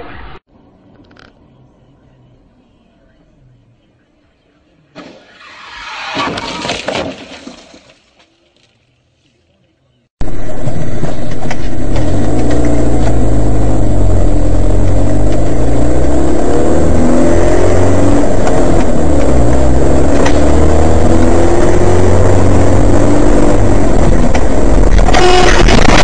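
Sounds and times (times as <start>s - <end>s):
car engine running: 10.2s - 26.0s.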